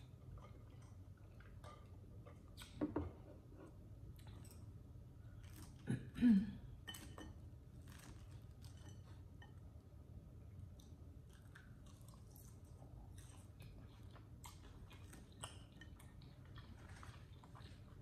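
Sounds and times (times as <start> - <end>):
person quietly chewing: 0.0 - 3.0, 10.4 - 18.0.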